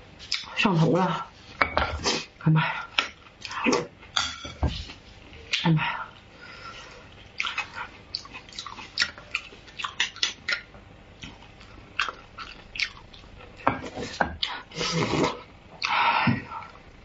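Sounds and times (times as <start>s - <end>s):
wet chewing smacking: 7.3s - 13.3s.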